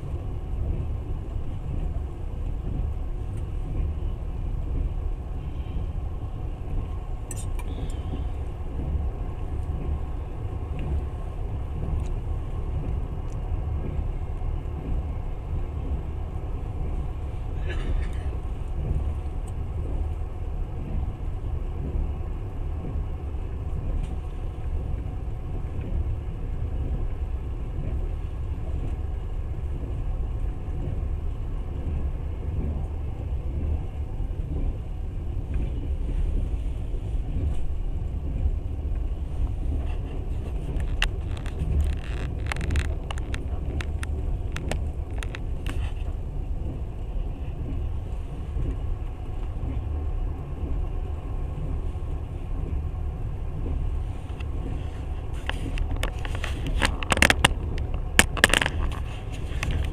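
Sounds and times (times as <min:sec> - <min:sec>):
train carriage rumble: 0:00.0 - 0:59.9
sharp clicks and rattles: 0:38.3 - 0:46.8, 0:53.6 - 0:59.9.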